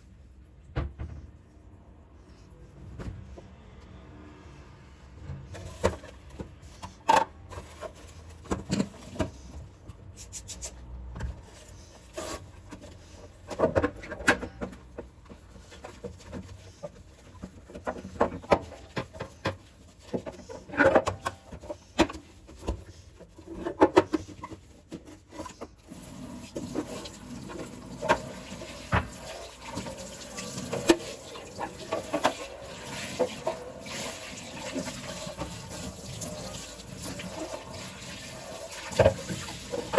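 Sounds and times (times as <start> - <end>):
kitchen items clattering: 23.3 - 39.9
water running: 25.9 - 39.9.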